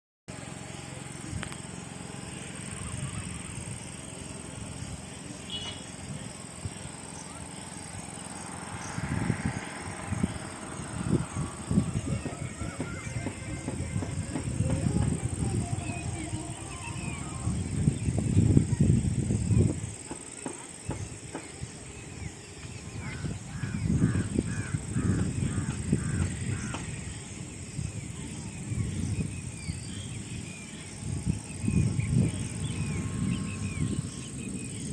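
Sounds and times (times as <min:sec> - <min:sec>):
insects trilling: 0:00.3 - 0:34.9
low uneven rumble: 0:00.3 - 0:34.9
steady high-pitched tone: 0:09.7 - 0:18.4
crow cawing: 0:23.2 - 0:26.8.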